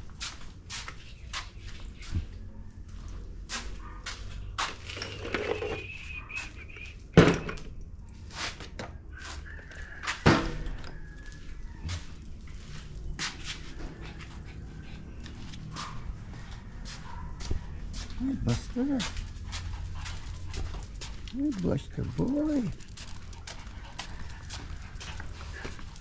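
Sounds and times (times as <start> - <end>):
dog panting and whining: 13.3 - 26.0.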